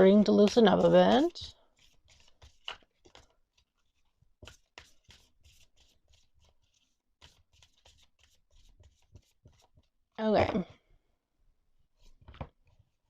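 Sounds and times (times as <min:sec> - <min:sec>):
cards being shuffled: 0:00.5 - 0:09.7.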